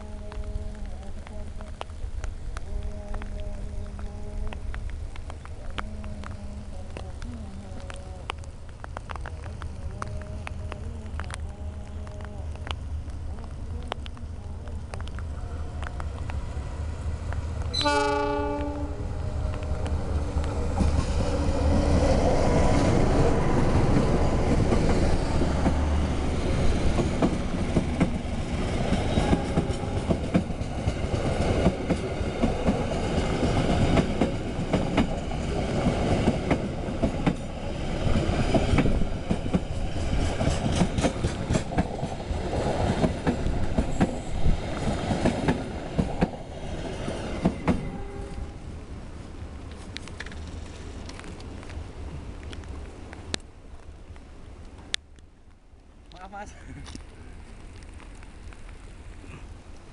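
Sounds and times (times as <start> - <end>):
diesel locomotive engine rumbling: 0.0 - 52.8
train horn blast: 17.7 - 19.9, 47.8 - 48.6
train wheels clattering over rail joints: 38.1 - 47.9.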